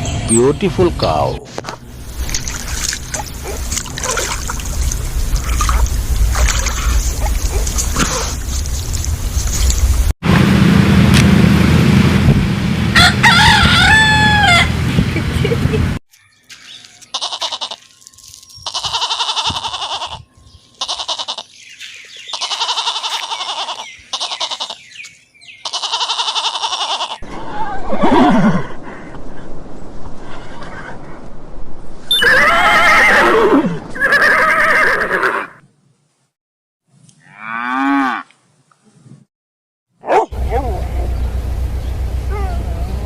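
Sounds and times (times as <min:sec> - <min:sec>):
rooster crowing: 0:12.9 - 0:14.8
goat bleating: 0:17.1 - 0:17.9, 0:18.6 - 0:20.2, 0:20.8 - 0:21.5, 0:22.3 - 0:24.8, 0:25.6 - 0:27.2.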